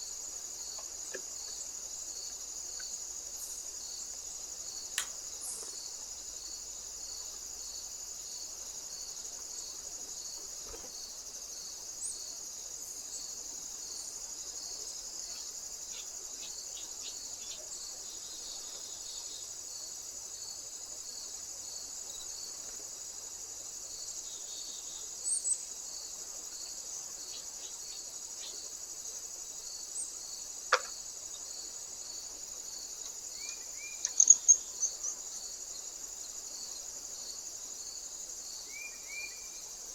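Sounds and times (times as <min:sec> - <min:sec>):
insects trilling: 0:00.0 - 0:39.9
faint ticks: 0:00.7 - 0:03.0, 0:04.9 - 0:05.8, 0:30.7 - 0:31.0, 0:33.0 - 0:34.5
sharp click: 0:05.0 - 0:05.2
pulsing insect: 0:25.9 - 0:39.9.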